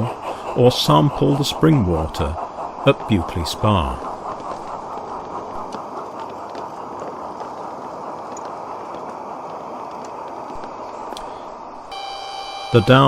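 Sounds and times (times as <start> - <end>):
model train wheels rumbling on rail: 0.0 - 13.0
faint clicks: 4.0 - 11.4.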